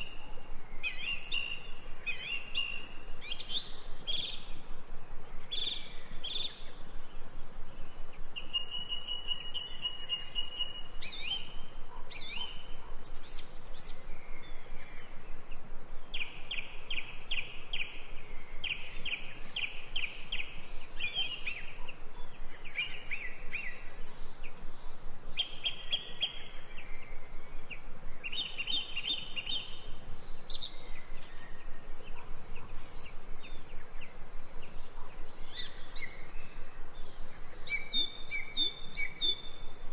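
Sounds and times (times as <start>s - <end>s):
background hiss: 0.0s - 39.9s
songbirds chirping: 0.0s - 39.9s.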